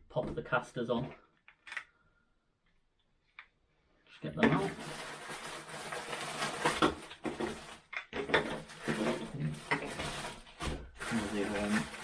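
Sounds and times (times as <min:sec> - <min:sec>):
plastic wheels clattering: 0:04.4 - 0:12.0
packaging rustling: 0:04.6 - 0:12.0.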